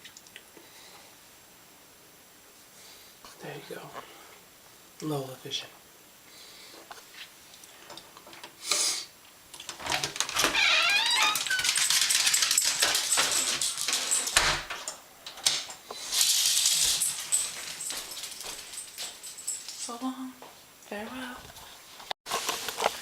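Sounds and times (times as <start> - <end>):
dog clicking and rattling: 9.5 - 20.0
rustling: 15.7 - 20.1, 21.2 - 23.0.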